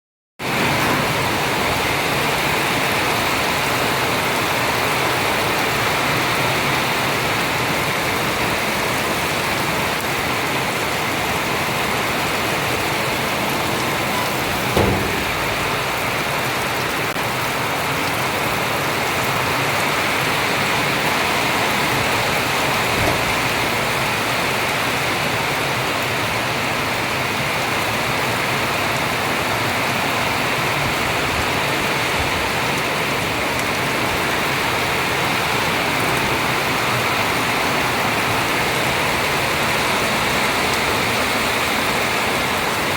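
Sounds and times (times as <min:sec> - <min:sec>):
heavy rain falling: 0:00.4 - 0:42.9
brief knock: 0:14.4 - 0:16.0.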